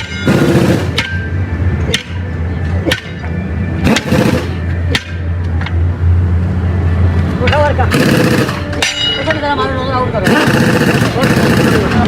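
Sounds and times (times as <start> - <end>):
hammer striking metal wheel: 0.0 - 5.8, 8.6 - 9.4.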